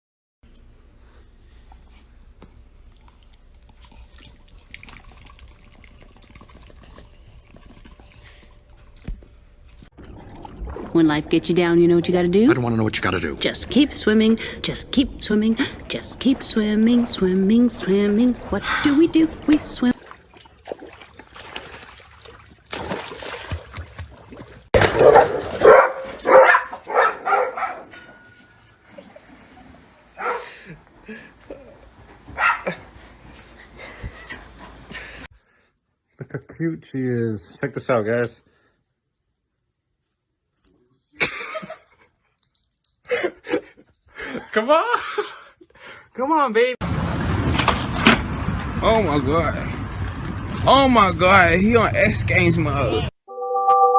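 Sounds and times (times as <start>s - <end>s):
low hum: 0.5s - 20.3s
water dripping and splashing: 2.7s - 11.7s, 15.6s - 26.3s
dog barking: 24.8s - 28.3s, 30.2s - 30.5s, 32.3s - 32.8s.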